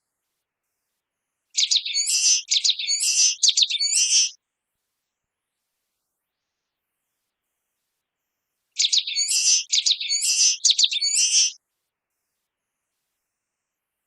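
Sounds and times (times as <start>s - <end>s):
bird singing high buzzy notes: 8.8s - 11.6s.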